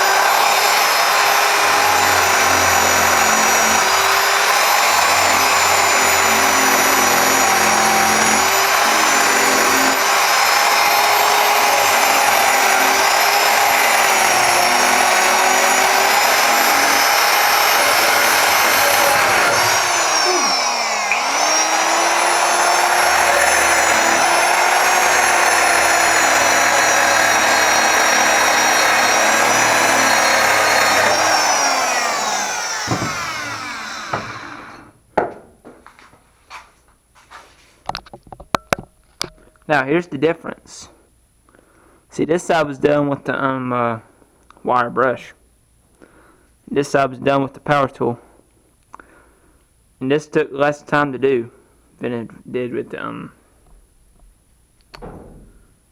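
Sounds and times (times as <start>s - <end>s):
electric power tool stripping rust: 0.0s - 35.0s.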